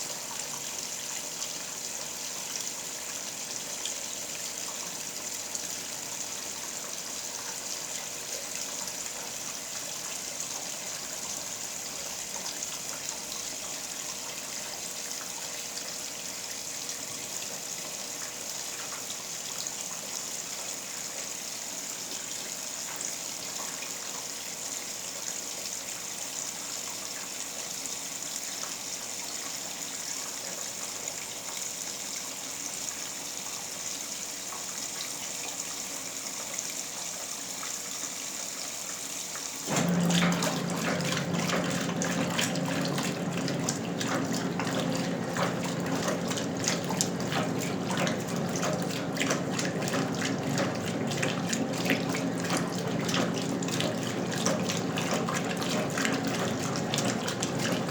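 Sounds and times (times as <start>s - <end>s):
water pouring into tub: 39.3s - 57.9s
water sloshing and splashing: 39.3s - 57.9s
washing machine motor hum: 39.6s - 57.9s.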